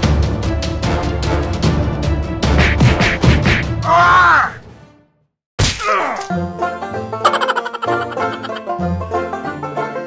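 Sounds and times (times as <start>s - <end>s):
plucked-string background music: 6.2s - 10.0s.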